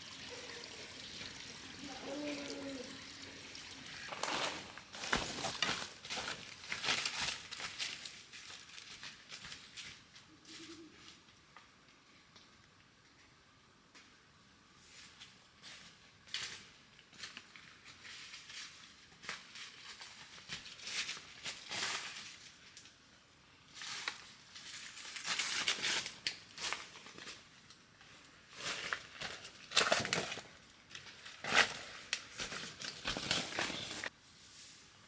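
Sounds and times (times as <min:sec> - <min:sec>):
rustling and crackling handling: 0:04.1 - 0:11.3, 0:23.7 - 0:34.8.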